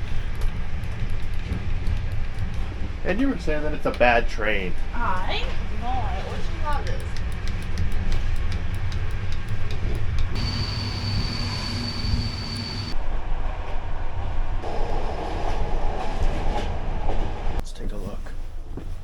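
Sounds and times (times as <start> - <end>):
train rumbling on rails: 0.0 - 17.6
high-pitched squeal: 10.4 - 13.0.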